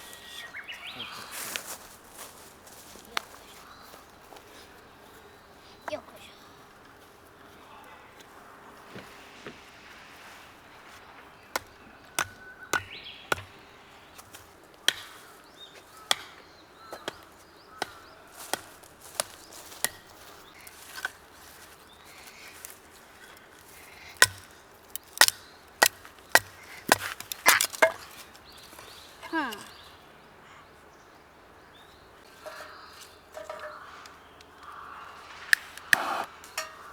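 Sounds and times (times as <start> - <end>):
knife chopping into wood: 11.6 - 13.6, 14.9 - 15.2, 16.1 - 16.4, 24.2 - 28.2.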